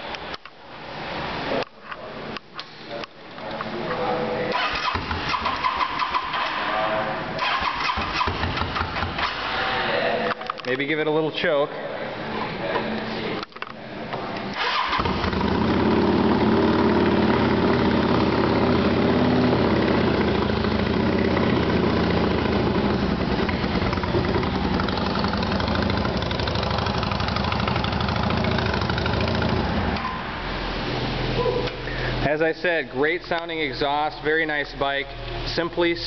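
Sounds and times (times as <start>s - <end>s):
motorcycle engine starting and idling: 4.5s - 6.7s, 7.4s - 9.7s, 14.5s - 30.4s.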